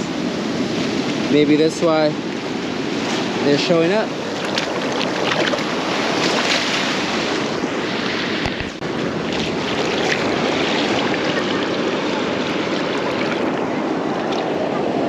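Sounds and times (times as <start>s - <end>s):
ocean surf washing up beach: 0.0s - 15.0s
wind on microphone: 0.0s - 15.0s.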